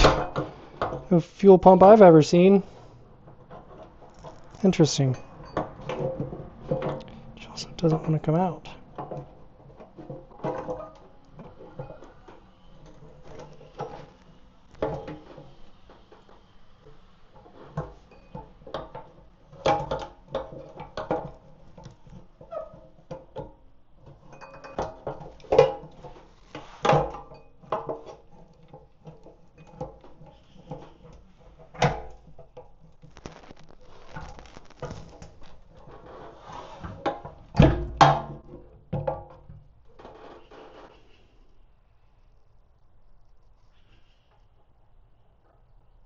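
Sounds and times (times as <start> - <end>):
tools knocking and clanking on metal: 3.3 - 7.2, 23.0 - 26.2.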